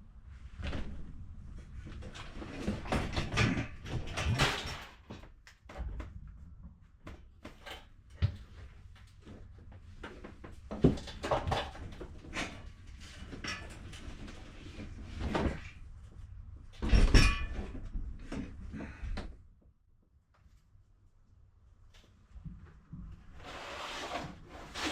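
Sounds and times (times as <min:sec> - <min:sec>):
items knocking and banging: 0:02.0 - 0:06.1, 0:10.1 - 0:12.6, 0:16.8 - 0:19.1
scraping clatter: 0:23.4 - 0:24.9.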